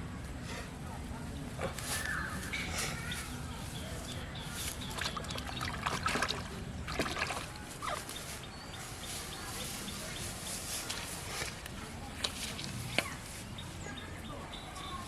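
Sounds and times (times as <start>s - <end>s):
water splashing and sloshing: 4.8s - 8.3s.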